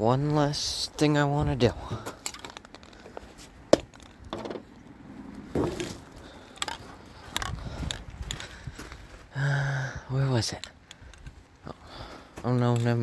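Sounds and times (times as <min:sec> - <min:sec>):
knocks and clunks of handling: 0:01.8 - 0:04.8, 0:05.5 - 0:08.5.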